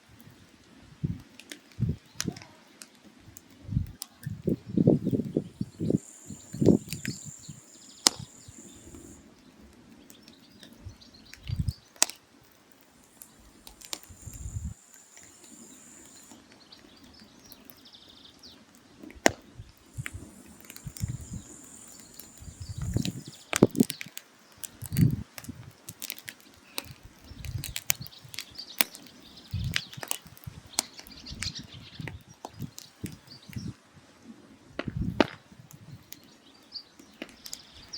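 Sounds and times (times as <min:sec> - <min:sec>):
firewood crackling and popping: 0:00.0 - 0:33.8, 0:34.7 - 0:37.9
thin high hiss: 0:04.3 - 0:09.2, 0:12.8 - 0:16.4, 0:19.8 - 0:25.3.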